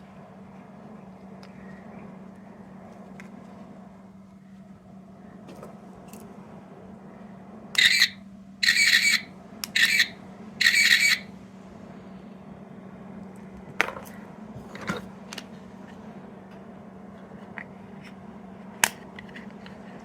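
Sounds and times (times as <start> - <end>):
toy handling clicks: 7.8 - 11.2
buzzy electronic toy bursts: 7.8 - 11.3.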